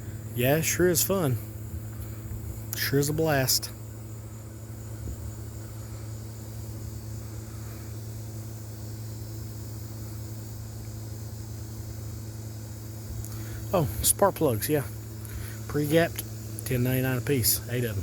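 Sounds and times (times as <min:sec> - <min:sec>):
faint hiss: 0:00.0 - 0:18.0
low mechanical hum: 0:00.0 - 0:18.0.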